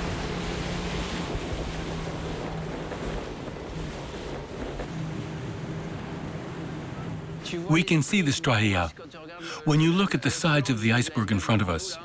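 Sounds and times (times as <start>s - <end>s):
small boat motor humming: 0.0s - 8.9s
water wash: 0.0s - 8.9s.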